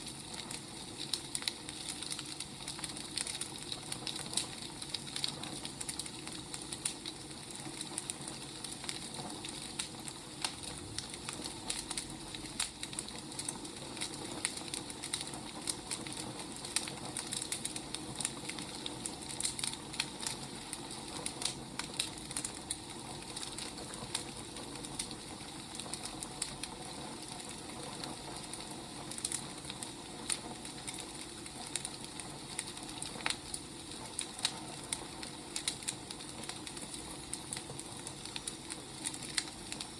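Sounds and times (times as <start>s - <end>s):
firewood crackling and popping: 0.0s - 39.9s.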